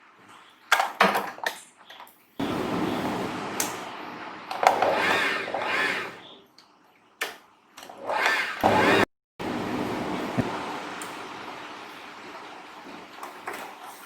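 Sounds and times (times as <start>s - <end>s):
sewing machine motor running: 4.6s - 6.2s, 7.9s - 9.1s.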